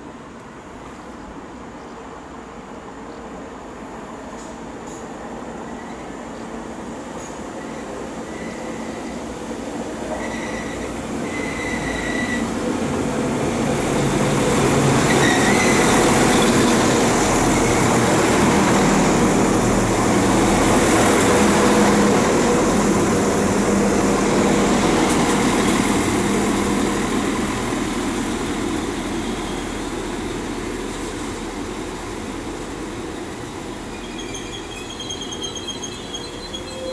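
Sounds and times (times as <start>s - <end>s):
diesel train passing: 0.0s - 36.9s
wheels squealing: 33.9s - 36.9s.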